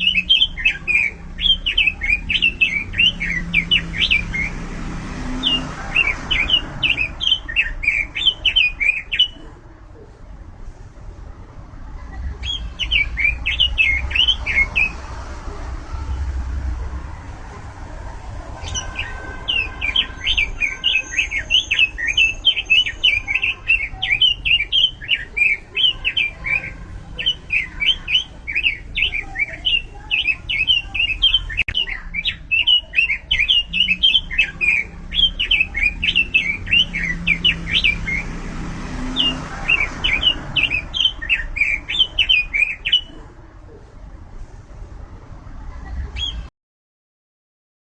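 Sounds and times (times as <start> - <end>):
bird singing fast song: 0.0 - 9.5, 12.2 - 16.8, 18.5 - 43.2, 46.1 - 46.5.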